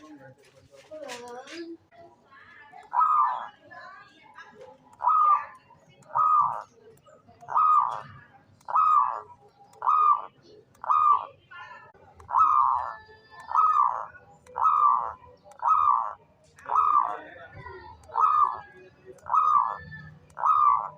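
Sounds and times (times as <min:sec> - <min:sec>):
dove cooing: 0:02.9 - 0:03.6, 0:04.8 - 0:06.8, 0:07.4 - 0:11.4, 0:12.0 - 0:20.9.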